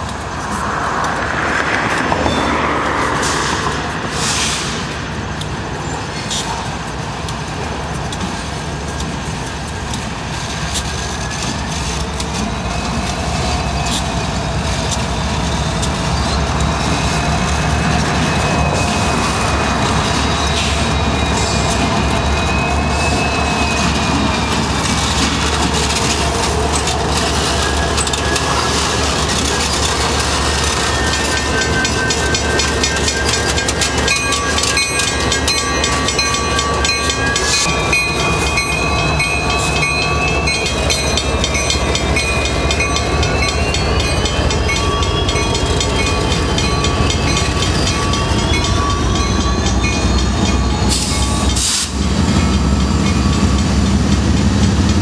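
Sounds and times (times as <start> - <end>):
freight train rumble: 0.0 - 55.0
train wheels clicking on rail joints: 0.0 - 55.0
high drawn-out squealing tones: 12.5 - 51.6.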